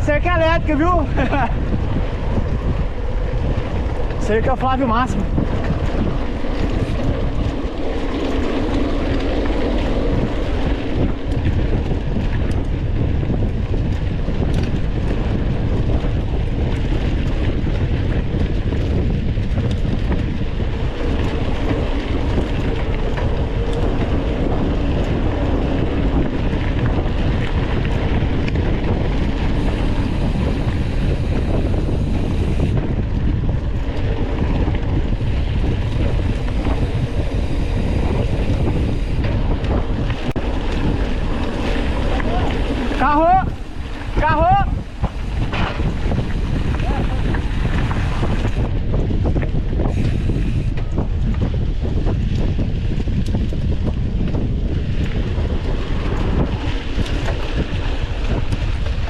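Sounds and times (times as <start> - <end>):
bike tyres rumbling on dirt: 0.0 - 59.0
wind buffeting microphone: 0.0 - 59.0.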